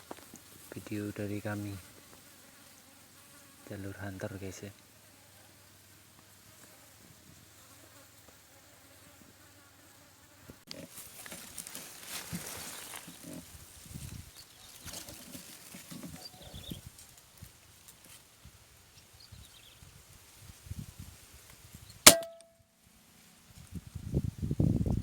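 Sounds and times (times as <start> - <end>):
faint insect buzzing: 0.0 - 18.2
rustling and knocking near microphone: 10.7 - 16.8.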